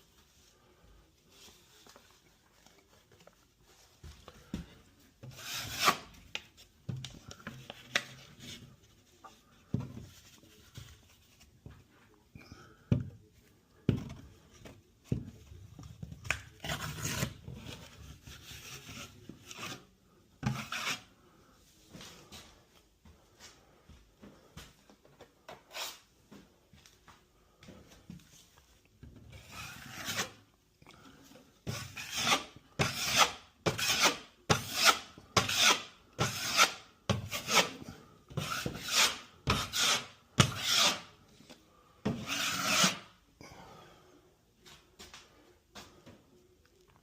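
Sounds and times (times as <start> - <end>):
drywall knife scraping compound: 4.4 - 11.6, 16.2 - 21.4, 25.5 - 26.1, 29.2 - 30.5, 31.2 - 43.2.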